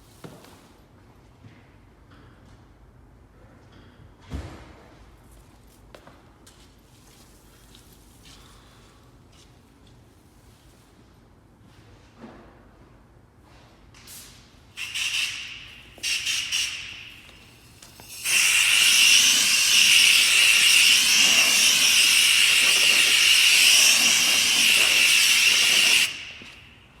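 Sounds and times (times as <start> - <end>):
hissing jet of spray: 14.8 - 26.8.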